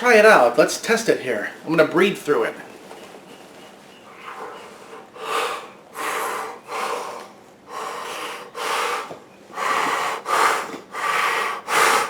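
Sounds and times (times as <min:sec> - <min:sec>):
man breathing hard through a mask: 0:04.1 - 0:12.0.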